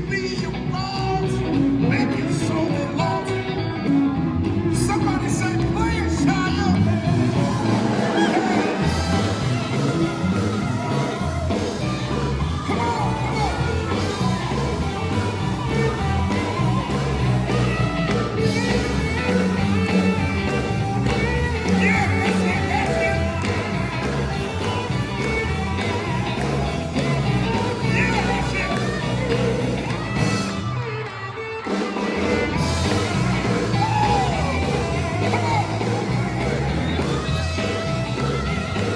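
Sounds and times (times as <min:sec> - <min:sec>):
gospel band playing live: 0:00.0 - 0:38.9
steel guitar gliding: 0:03.3 - 0:38.9.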